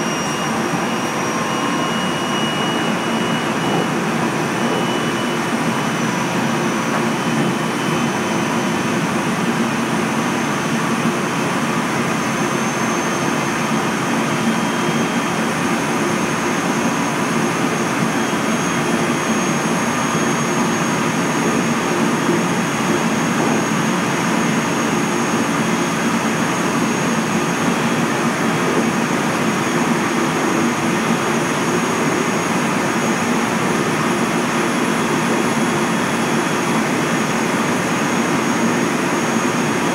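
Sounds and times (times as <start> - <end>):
faint high whines: 0.0 - 8.8
train wheels rumbling on rail: 3.1 - 8.1, 20.8 - 25.0.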